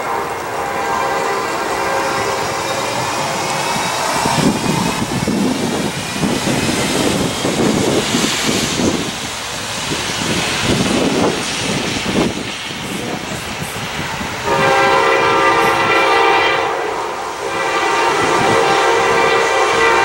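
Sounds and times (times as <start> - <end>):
train horn blast: 0.0 - 3.5, 14.4 - 20.0
approaching train roar: 0.0 - 20.0.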